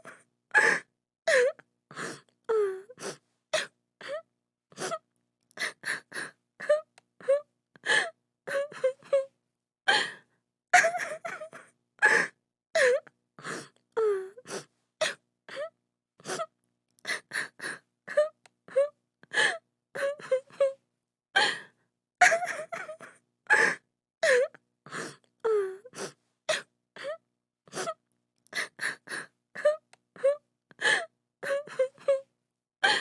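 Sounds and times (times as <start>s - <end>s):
woman sobbing: 10.8s - 13.0s, 22.2s - 24.5s, 29.6s - 32.2s.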